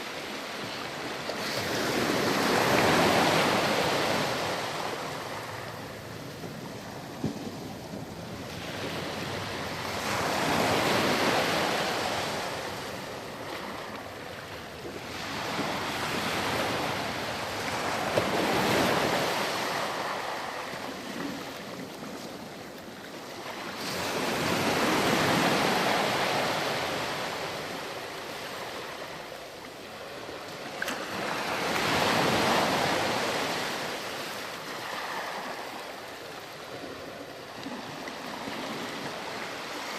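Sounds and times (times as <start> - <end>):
ocean surf washing onto sand: 0.0 - 29.2.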